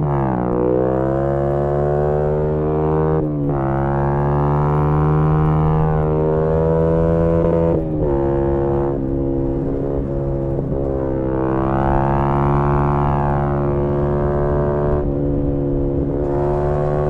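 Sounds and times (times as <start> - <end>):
motorcycle engine running: 1.6 - 17.0.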